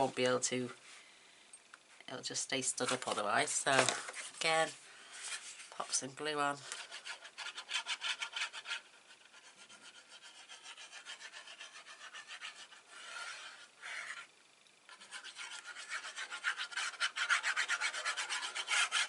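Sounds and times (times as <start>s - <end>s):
glue rubbed onto card rasping: 6.8s - 14.3s, 14.9s - 19.0s.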